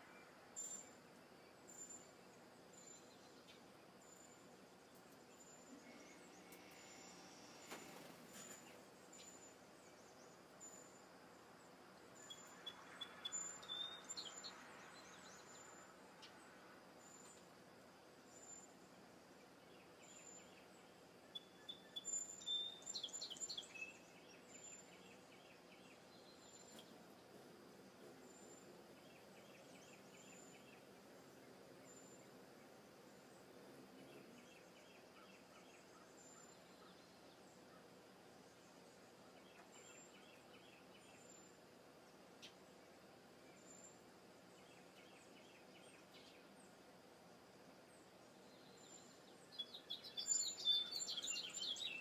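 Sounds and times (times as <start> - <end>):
bird song phrase: 11.6 - 17.4, 19.4 - 27.3, 28.0 - 37.9, 38.5 - 41.6, 42.4 - 46.8, 48.3 - 52.0.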